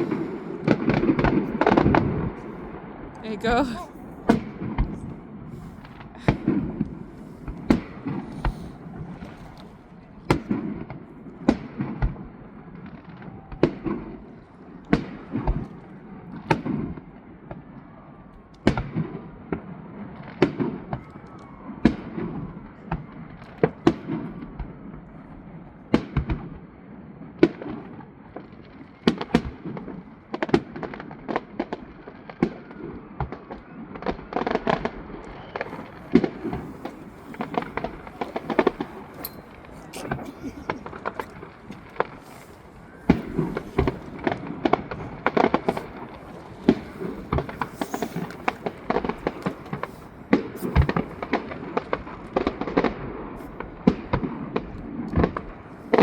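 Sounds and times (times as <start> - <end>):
fireworks bangs: 0.0 - 17.7, 27.4 - 56.0.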